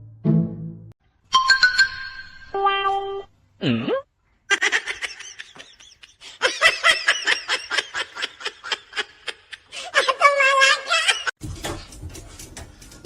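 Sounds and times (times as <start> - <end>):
person laughing: 3.6 - 11.3.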